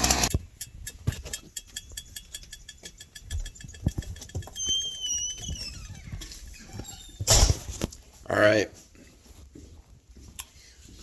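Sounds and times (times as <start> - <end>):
chainsaw engine running: 0.0 - 0.3.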